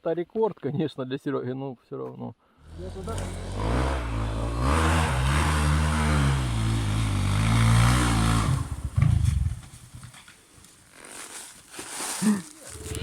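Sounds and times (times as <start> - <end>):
dirt bike engine revving: 2.6 - 10.0.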